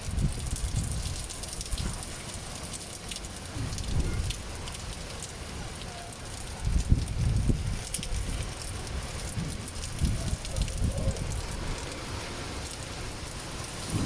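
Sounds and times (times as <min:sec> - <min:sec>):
wind rumbling on microphone: 0:00.0 - 0:02.1, 0:03.4 - 0:05.5, 0:06.4 - 0:14.0
heavy rain falling: 0:00.0 - 0:14.0.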